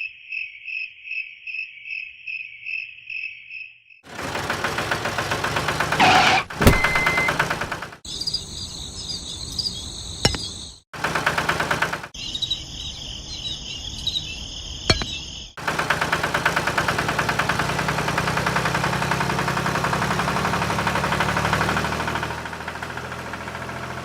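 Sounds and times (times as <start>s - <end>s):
insects trilling: 0.0s - 4.0s, 8.1s - 10.8s, 12.2s - 15.6s
small engine running: 4.1s - 8.1s, 11.0s - 12.2s, 15.6s - 24.0s.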